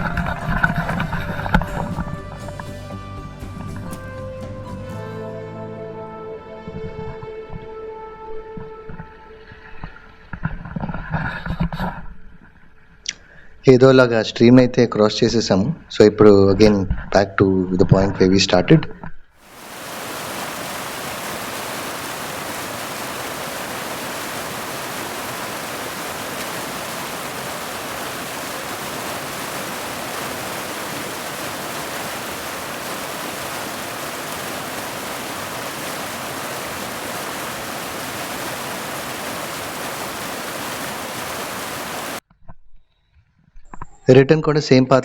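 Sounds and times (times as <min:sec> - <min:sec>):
rushing water roar: 0:19.4 - 0:42.2.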